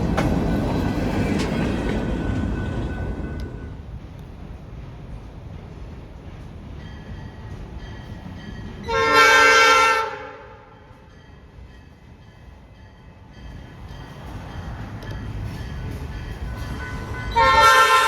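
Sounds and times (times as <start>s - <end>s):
low rumble of passing train: 0.0s - 18.0s
locomotive air horn blast: 8.9s - 10.7s, 17.3s - 18.0s.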